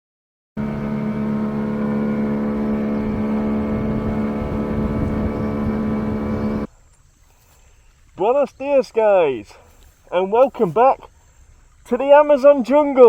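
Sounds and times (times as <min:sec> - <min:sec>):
engine droning steadily: 0:00.6 - 0:06.7.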